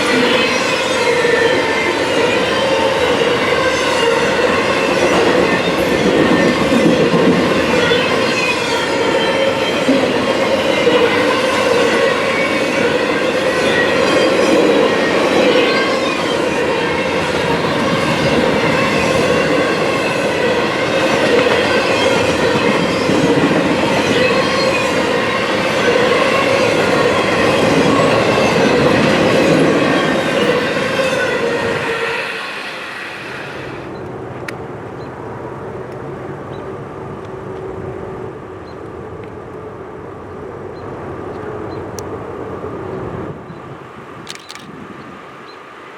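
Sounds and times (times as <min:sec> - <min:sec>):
train wheels clattering on rails: 0:02.3 - 0:32.0.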